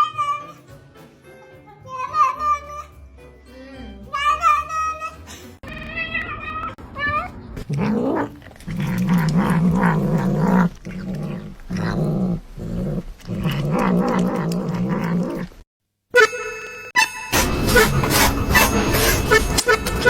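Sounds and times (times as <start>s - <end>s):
pet growling: 7.6s - 15.6s.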